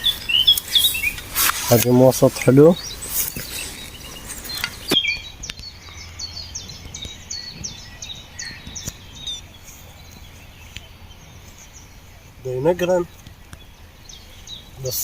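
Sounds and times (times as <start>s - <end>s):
low outdoor background: 0.0s - 15.0s
small bird chirping: 0.0s - 15.0s.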